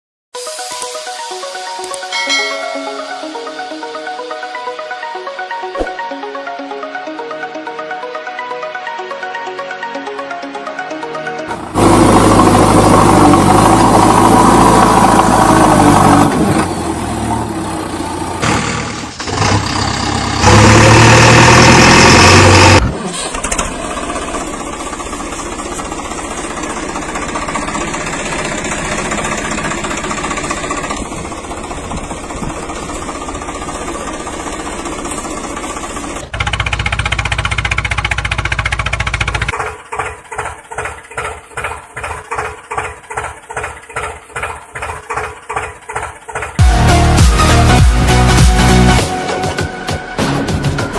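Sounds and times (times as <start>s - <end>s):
background music: 0.4s - 13.6s, 46.6s - 50.9s
engine running: 10.0s - 49.2s.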